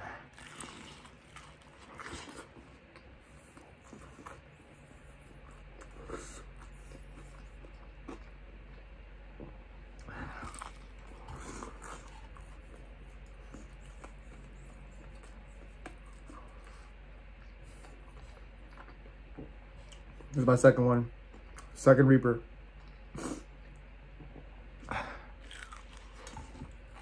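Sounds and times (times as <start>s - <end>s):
person chewing crispy food: 0.2s - 9.0s, 9.9s - 20.3s, 24.9s - 27.0s.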